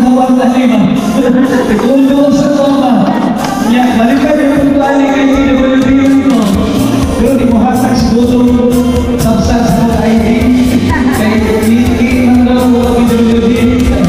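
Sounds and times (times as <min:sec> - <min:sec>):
backing music: 0:00.0 - 0:14.0
man singing into a microphone: 0:00.0 - 0:14.0.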